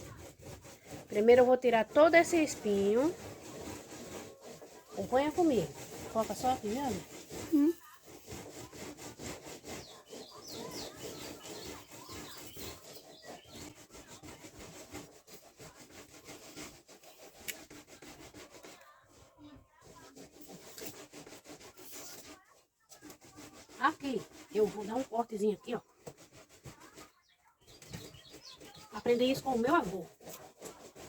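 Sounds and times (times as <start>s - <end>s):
scraping along a leaf: 0.0s - 31.0s.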